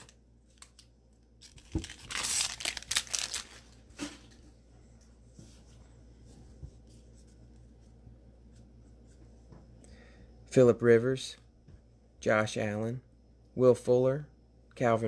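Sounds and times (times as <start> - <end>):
foil wrapper crinkling and tearing: 0.0 - 3.8
faint hum: 0.0 - 15.0.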